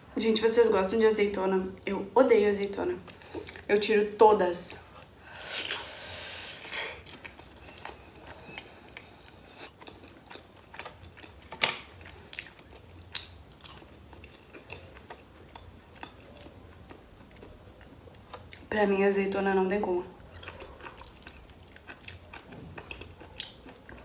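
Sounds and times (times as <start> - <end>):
person biting and chewing pizza: 6.7 - 18.6, 20.2 - 24.0.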